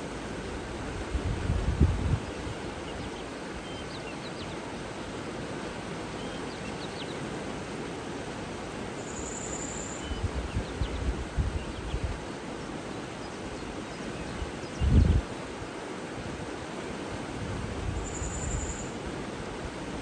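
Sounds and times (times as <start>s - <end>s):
water rushing: 0.0s - 20.0s
wind buffeting microphone: 0.9s - 2.4s, 10.2s - 12.2s, 14.8s - 15.3s
high bird trill: 18.0s - 19.0s.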